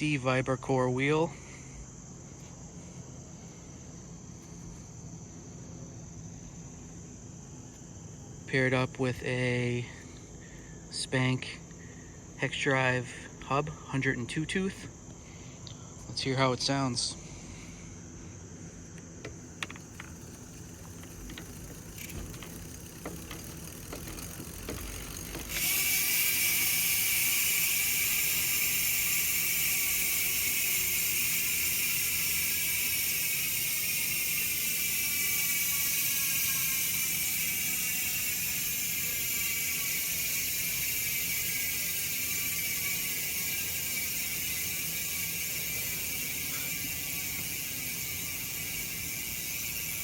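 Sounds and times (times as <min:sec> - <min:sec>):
freehub buzzing: 0:17.2 - 0:50.0
scattered hub clicks: 0:18.9 - 0:50.0.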